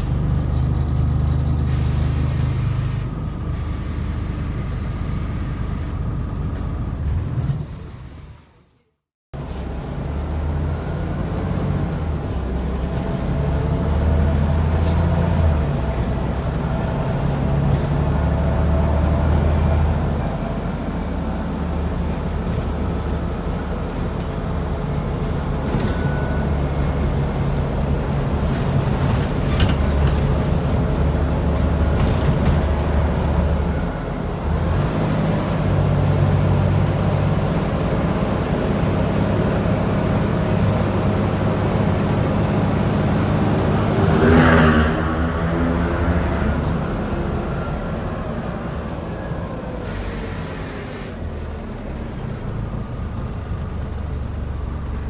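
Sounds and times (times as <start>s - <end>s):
bus diesel engine drone: 0.0s - 55.0s
faint high whistle: 49.9s - 51.2s.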